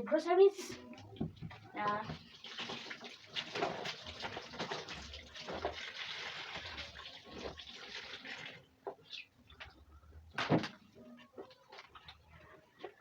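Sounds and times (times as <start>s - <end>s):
water running and splashing: 1.3s - 9.2s.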